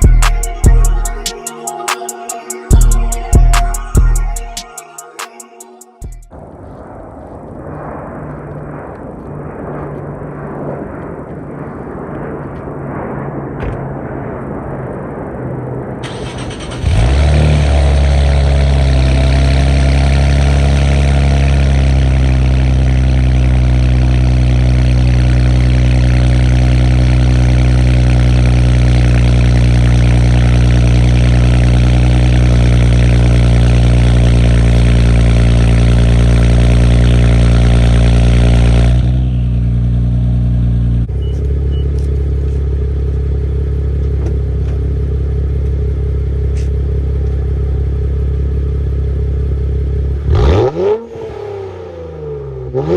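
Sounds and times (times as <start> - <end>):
car engine starting and idling: 16.0 - 52.9.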